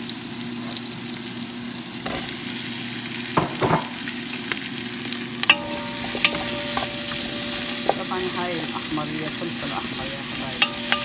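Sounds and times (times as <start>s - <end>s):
onions sizzling in hot oil: 0.0s - 11.0s
peppers stirred into pot: 4.5s - 11.0s.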